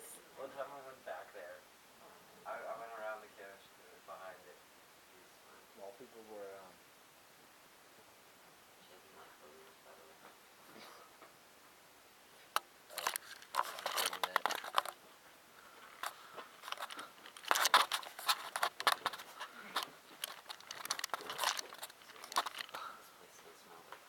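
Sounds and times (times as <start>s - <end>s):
crinkling and crackling: 12.4s - 24.0s.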